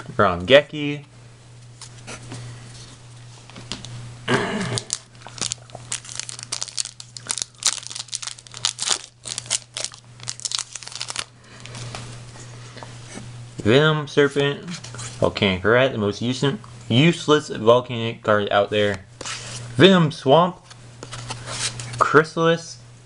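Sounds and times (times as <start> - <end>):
steady low hum: 0.0 - 23.0
foil wrapper crinkling: 4.8 - 11.9.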